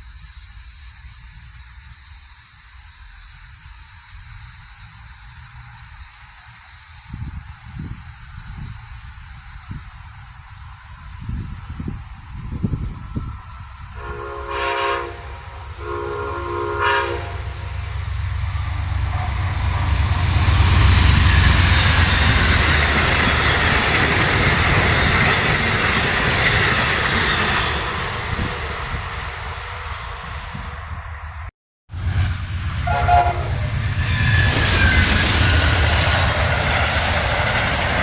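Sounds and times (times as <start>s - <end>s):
train passing with rumble: 0.0s - 38.0s
train horn blasts: 13.9s - 20.4s, 32.0s - 35.6s.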